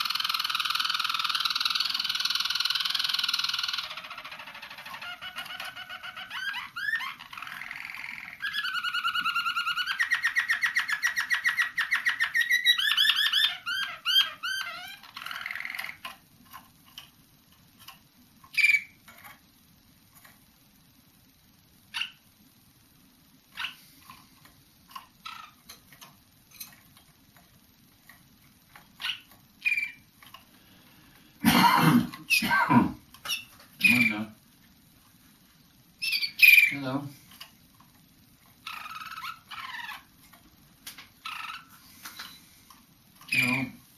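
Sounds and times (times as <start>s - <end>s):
canary singing trills: 0.0s - 16.2s, 18.4s - 19.3s, 21.8s - 22.4s, 23.5s - 24.0s, 24.9s - 26.8s, 28.7s - 30.4s, 33.2s - 34.4s, 35.9s - 37.0s, 38.6s - 40.3s, 41.2s - 42.5s, 43.2s - 43.8s
bird chirps: 18.5s - 19.0s, 29.0s - 30.0s, 36.0s - 36.8s.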